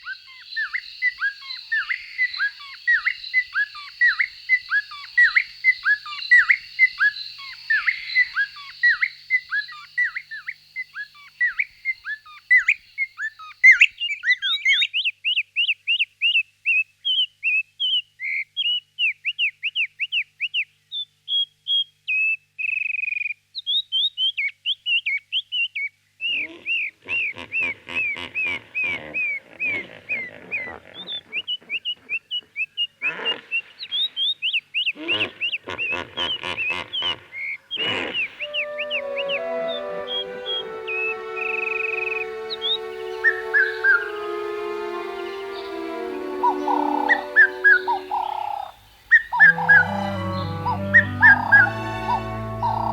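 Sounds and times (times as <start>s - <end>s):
bird chirping whistled notes: 38.4s - 44.2s, 46.4s - 52.9s.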